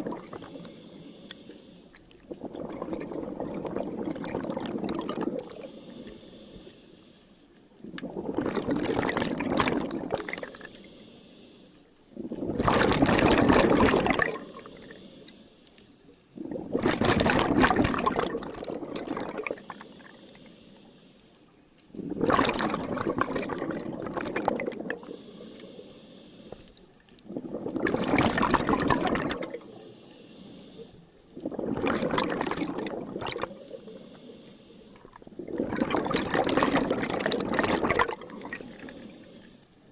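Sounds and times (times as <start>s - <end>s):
exhaled air bubbling: 0.0s - 6.7s, 7.6s - 11.0s, 12.0s - 15.3s, 16.2s - 20.5s, 21.9s - 39.9s.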